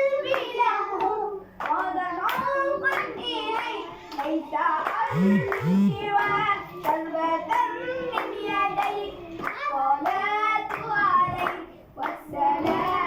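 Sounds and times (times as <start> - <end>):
person singing devotional song: 5.1 - 6.2.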